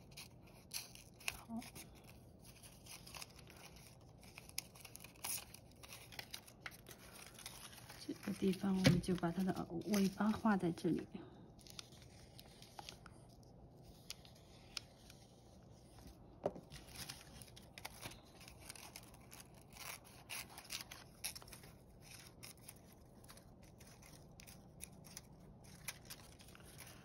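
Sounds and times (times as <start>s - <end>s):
scissors snipping paper: 0.0s - 10.3s, 16.8s - 27.0s.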